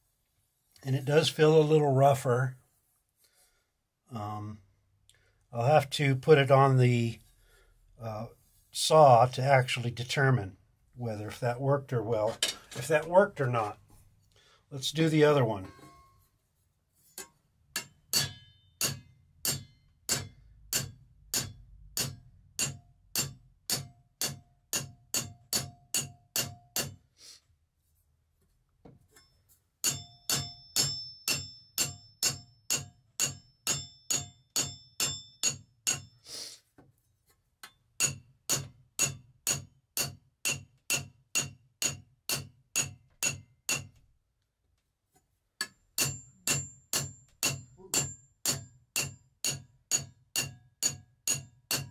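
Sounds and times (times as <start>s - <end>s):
metal file striking saw blade: 17.2s - 27.0s, 29.8s - 36.2s, 38.0s - 44.0s, 45.6s - 51.9s.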